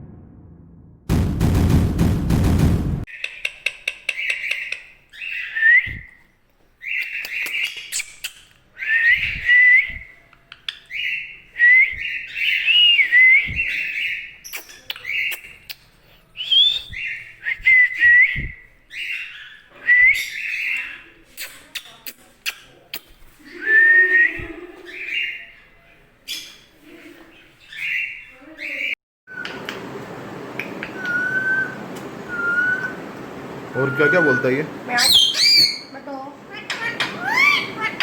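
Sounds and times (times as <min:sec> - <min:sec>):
parakeet raspy calls: 0:34.9 - 0:38.0.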